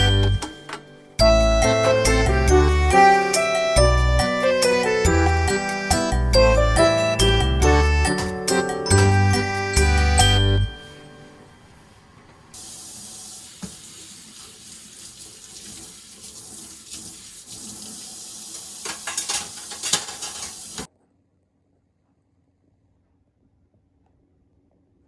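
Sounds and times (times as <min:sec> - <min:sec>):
items clattering: 0:00.0 - 0:01.2, 0:18.6 - 0:20.9
tap water running into sink: 0:12.6 - 0:20.9.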